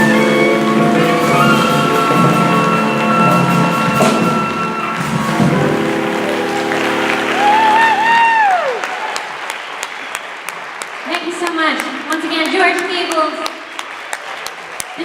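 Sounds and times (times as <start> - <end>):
jazz band playing: 0.0 - 8.4
audience applause: 0.0 - 15.0.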